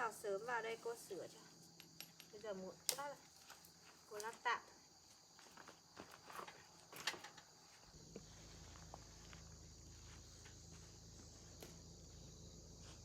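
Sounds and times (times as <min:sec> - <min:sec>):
insects chirring: 0:00.0 - 0:13.0
low hum: 0:07.9 - 0:13.0.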